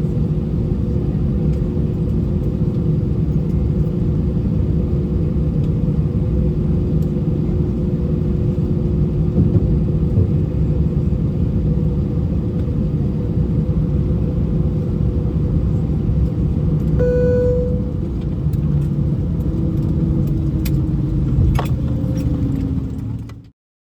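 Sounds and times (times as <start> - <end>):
aircraft cabin engine rumble: 0.0 - 23.4
low hum: 16.9 - 21.5
short pitched tone: 17.0 - 18.2.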